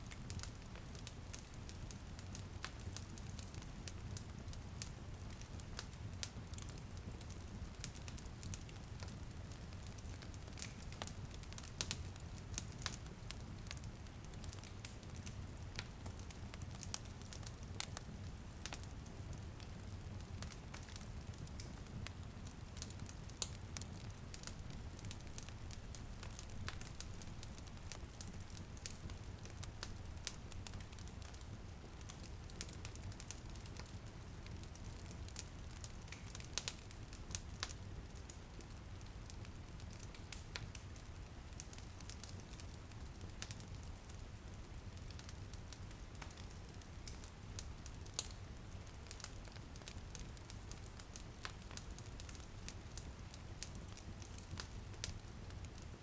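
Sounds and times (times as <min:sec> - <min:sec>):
light rain on a window: 0:00.0 - 0:56.0
wood fire crackling: 0:00.0 - 0:56.0.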